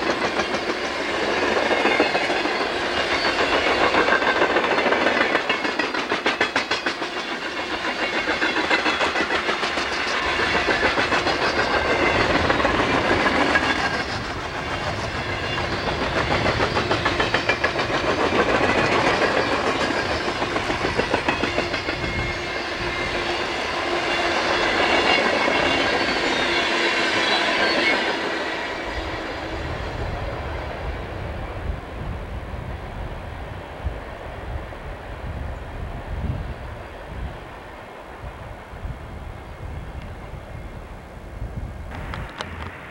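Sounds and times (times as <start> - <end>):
train wheels clicking over rail joints: 0.0 - 29.5, 41.9 - 42.9
rumble and rattle of train cars: 0.0 - 42.9.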